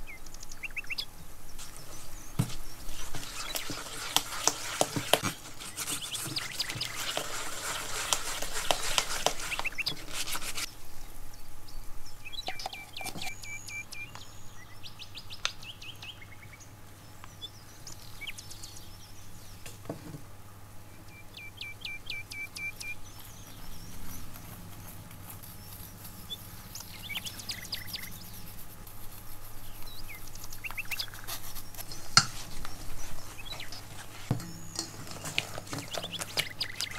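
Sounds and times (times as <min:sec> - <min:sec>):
bird chirping trills: 0:00.0 - 0:19.8, 0:20.8 - 0:36.9
spatula scraping batter in bowl: 0:02.9 - 0:10.7.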